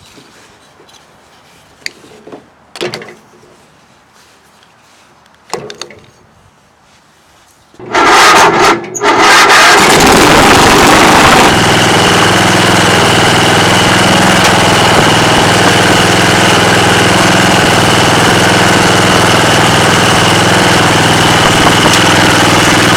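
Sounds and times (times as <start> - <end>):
lawn tractor engine starting and running: 7.8 - 22.9
high whine: 9.4 - 22.9.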